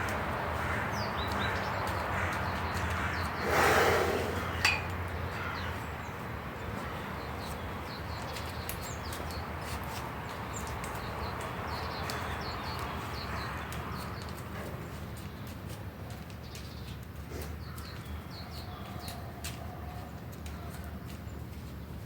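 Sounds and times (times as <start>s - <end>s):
birds chirping: 0.0s - 15.7s.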